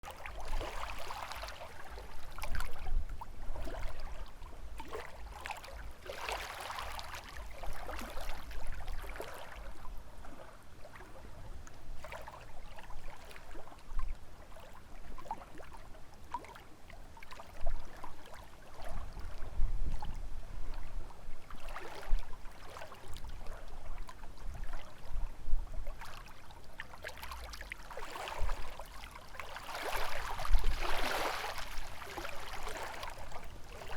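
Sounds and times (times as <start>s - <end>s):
lake waves lapping at shore: 0.0s - 11.4s, 12.0s - 25.1s, 25.8s - 33.9s
wind rumble on microphone: 0.3s - 6.0s, 17.6s - 26.9s, 28.0s - 28.9s, 29.7s - 33.9s.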